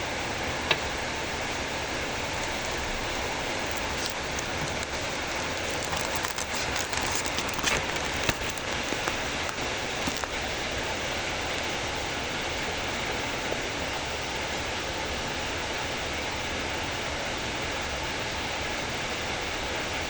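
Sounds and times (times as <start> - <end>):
heavy rain falling: 1.2 - 11.7.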